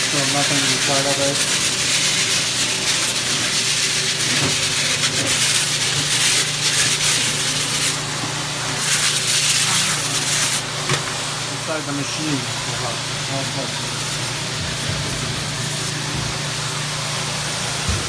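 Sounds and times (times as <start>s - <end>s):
vacuum hose sucking air: 0.0s - 18.0s
nozzle rubbing and scraping: 0.1s - 11.2s.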